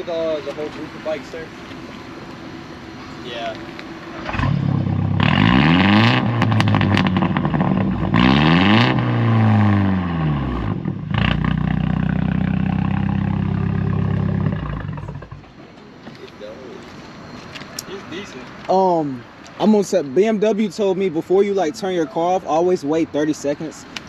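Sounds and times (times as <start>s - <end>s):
car engine revving: 0.8s - 15.6s
exhaust pops and crackles: 3.5s - 16.4s.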